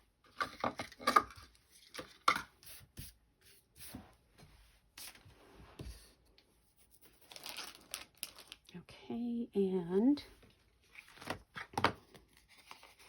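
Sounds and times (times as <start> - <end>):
paper rustling: 6.8 - 8.6, 10.8 - 13.0.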